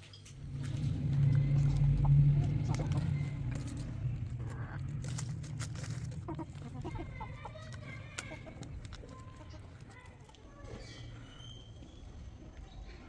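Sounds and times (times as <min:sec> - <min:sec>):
low steady rumble: 0:00.2 - 0:10.0
chickens clucking: 0:00.8 - 0:11.3.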